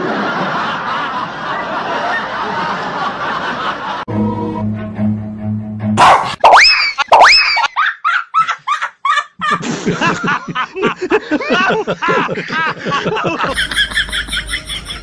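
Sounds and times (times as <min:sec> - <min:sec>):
music: 0:04.1 - 0:06.0
snickering laughter: 0:06.3 - 0:15.0.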